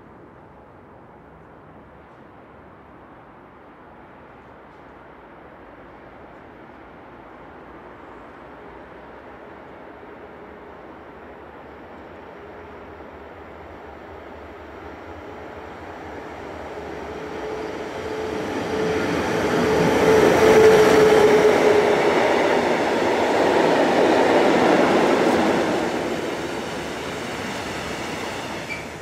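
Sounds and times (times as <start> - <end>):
locomotive whine: 16.4 - 29.0
freight wagons rolling on rails: 28.4 - 29.0.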